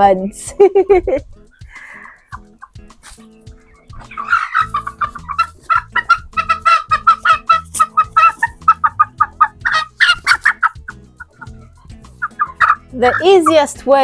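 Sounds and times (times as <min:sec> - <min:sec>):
young chicken clucking: 0:03.9 - 0:13.6.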